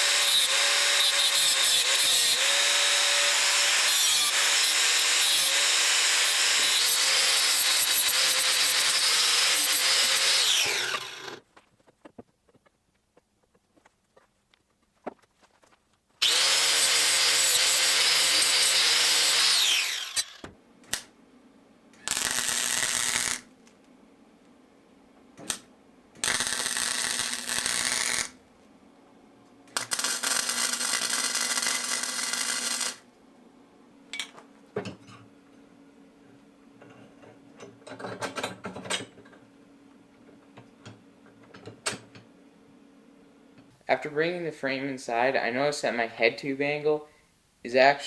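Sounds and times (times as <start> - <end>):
power tool whirring: 0.0 - 11.4, 16.2 - 20.5, 29.8 - 33.0.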